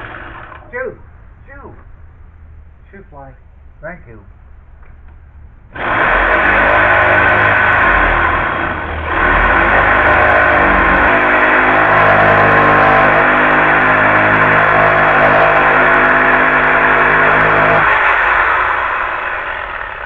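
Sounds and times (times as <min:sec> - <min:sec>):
reciprocating saw cutting wood: 0:00.0 - 0:00.7, 0:05.7 - 0:20.0.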